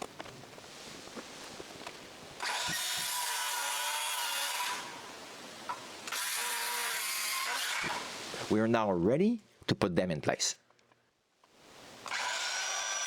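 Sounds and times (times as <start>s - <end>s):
power saw cutting wood: 2.4s - 5.1s, 6.0s - 8.2s, 12.0s - 13.0s.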